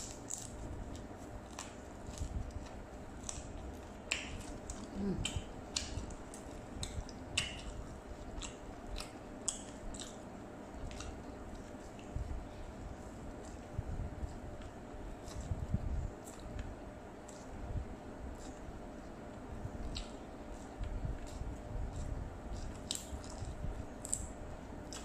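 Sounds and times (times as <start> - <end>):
person chewing: 0.0 - 17.6, 18.2 - 25.0
mouth clicks and smacks: 3.2 - 12.1, 19.8 - 25.0.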